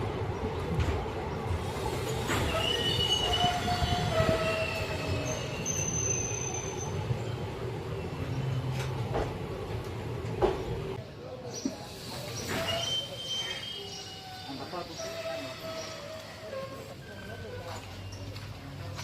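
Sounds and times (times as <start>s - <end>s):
train rumble: 0.0s - 11.0s
train wheels squealing: 1.8s - 7.4s, 11.8s - 18.8s.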